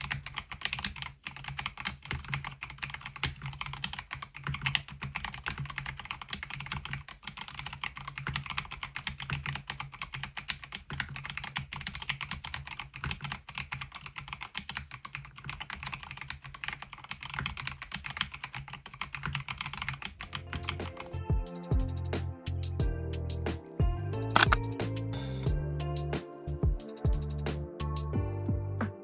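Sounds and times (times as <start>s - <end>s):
mechanical keyboard typing: 0.0s - 21.2s, 24.3s - 24.7s
music: 20.3s - 29.0s.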